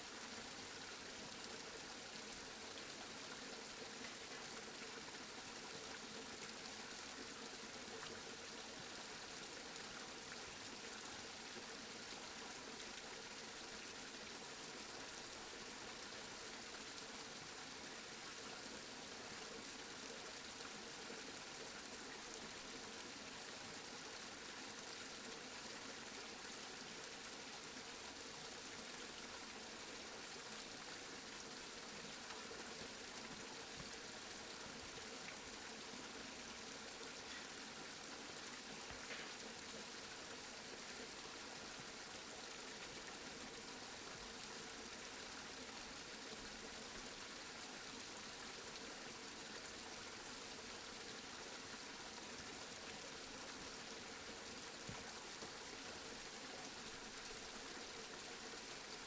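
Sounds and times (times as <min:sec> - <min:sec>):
steady rain hiss: 0:25.4 - 0:59.0.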